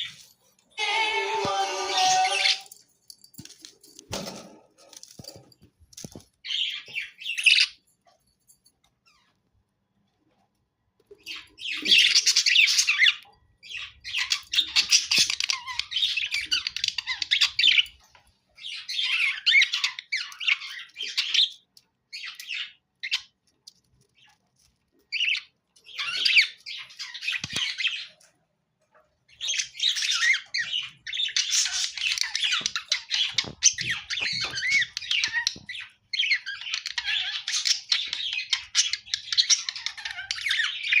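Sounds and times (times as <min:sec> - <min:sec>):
budgerigars chattering and squawking: 0:29.3 - 0:41.0.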